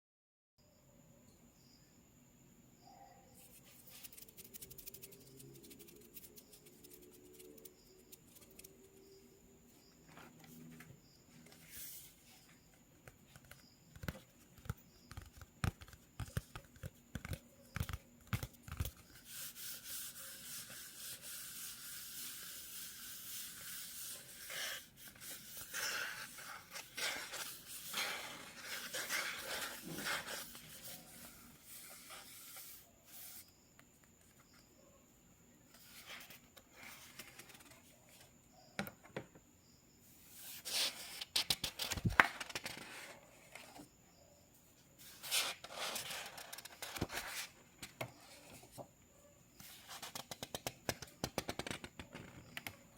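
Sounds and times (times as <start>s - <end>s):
scratchy drawing strokes on paper: 3.4s - 9.3s, 18.7s - 33.6s
pencil tapping on paper: 13.1s - 18.9s.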